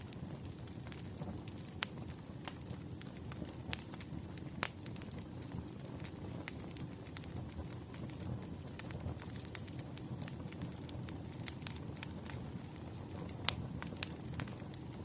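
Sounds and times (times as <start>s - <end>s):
firewood crackling and popping: 0.0s - 15.0s
low rumble of flame: 0.0s - 15.0s.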